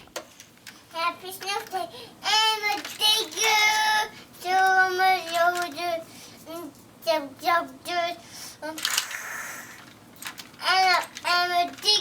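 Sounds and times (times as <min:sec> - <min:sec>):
child singing: 0:01.0 - 0:08.8, 0:10.6 - 0:12.0.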